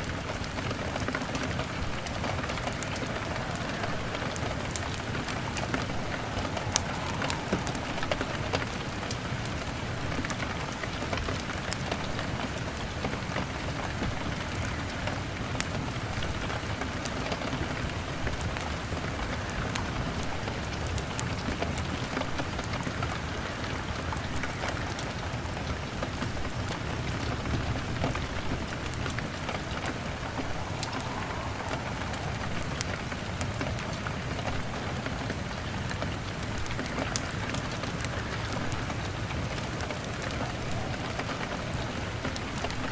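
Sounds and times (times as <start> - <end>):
log fire crackling: 0.0 - 42.9
rain on a window pane: 0.0 - 42.9.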